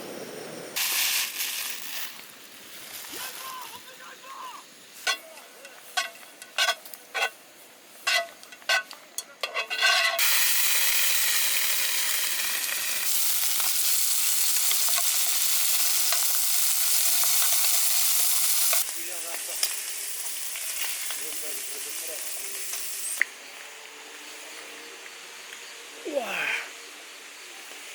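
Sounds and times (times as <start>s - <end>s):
food sizzling in a pan: 0.8s - 6.7s, 10.1s - 23.2s.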